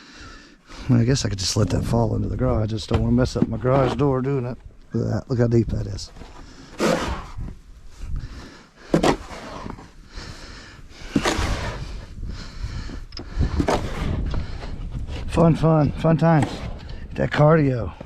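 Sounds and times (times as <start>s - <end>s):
snow shovel scraping snow: 6.8s - 7.4s, 8.9s - 9.9s, 11.0s - 12.1s, 13.5s - 14.2s
wind rumble on microphone: 11.3s - 18.0s.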